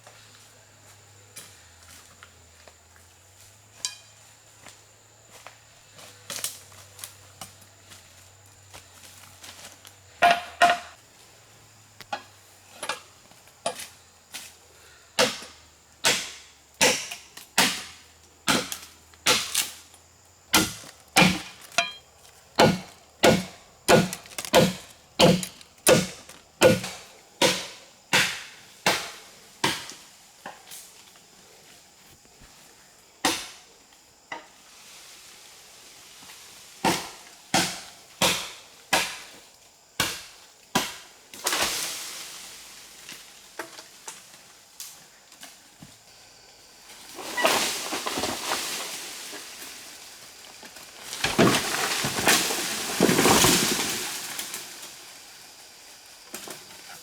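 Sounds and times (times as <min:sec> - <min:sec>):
blade chopping into wood: 0:15.2 - 0:19.8, 0:20.5 - 0:22.0, 0:22.6 - 0:30.0, 0:40.0 - 0:41.0.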